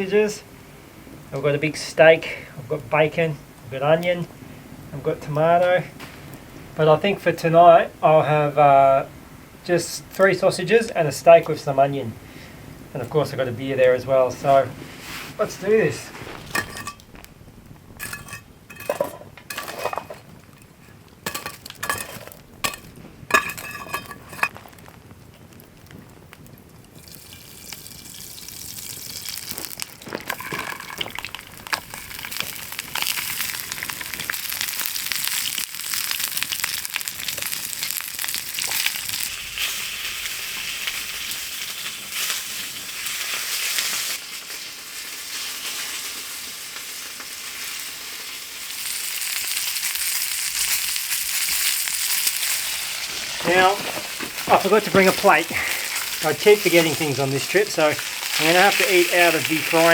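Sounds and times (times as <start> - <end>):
metal clinks and knocks: 16.5 - 17.3, 18.0 - 24.6
meat sizzling in a frying pan: 26.9 - 59.9.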